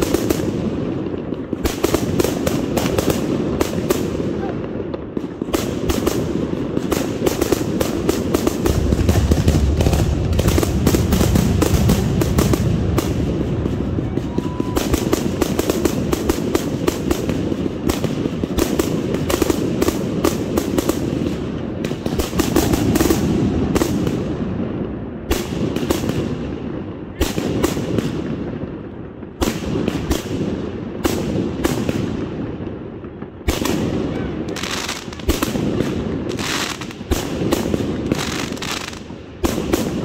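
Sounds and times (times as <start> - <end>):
fireworks bangs and crackling: 0.0 - 40.0.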